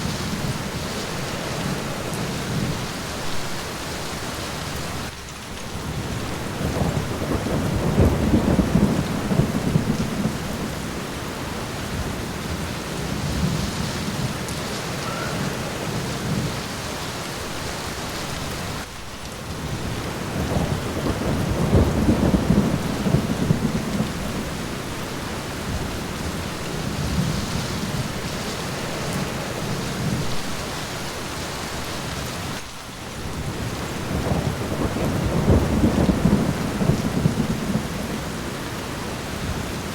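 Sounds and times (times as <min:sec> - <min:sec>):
rain on a window: 0:00.0 - 0:39.9
rolling thunder: 0:05.7 - 0:31.2, 0:33.2 - 0:39.9.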